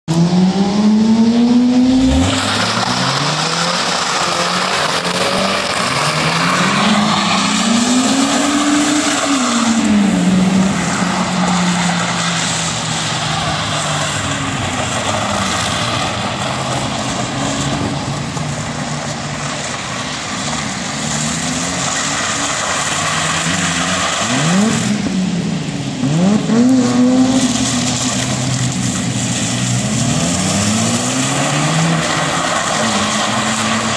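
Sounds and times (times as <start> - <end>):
car engine revving: 0.0 - 33.9
hiss of wet tyres and spray: 2.0 - 33.9.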